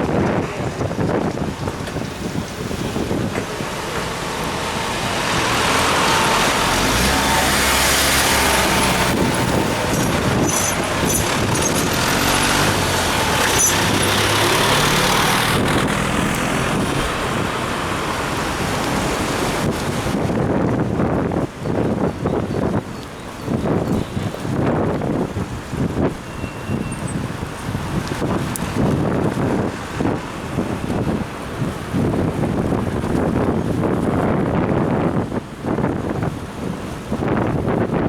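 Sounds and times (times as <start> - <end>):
wind buffeting microphone: 0.0 - 38.0
large vehicle passing: 2.8 - 20.3.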